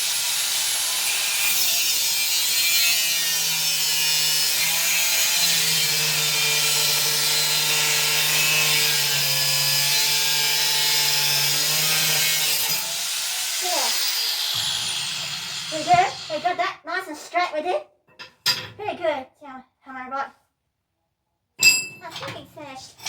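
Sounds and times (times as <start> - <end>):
angle grinder cutting steel: 0.0 - 16.6.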